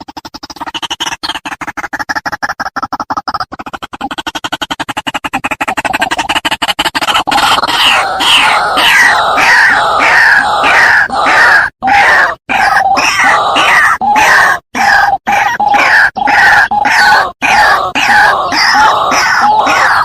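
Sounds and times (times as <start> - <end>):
bird harsh croaking calls: 0.0 - 20.0.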